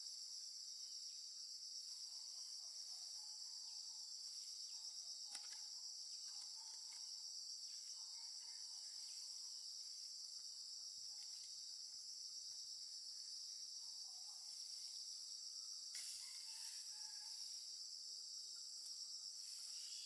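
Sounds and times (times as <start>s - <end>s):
insects trilling: 14.5s - 20.0s.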